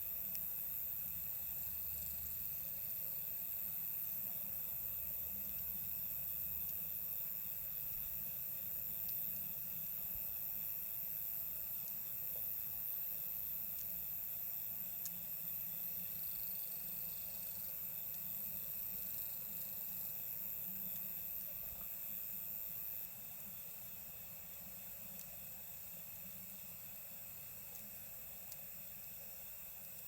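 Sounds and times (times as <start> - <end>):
night insects trilling: 0.0 - 30.0.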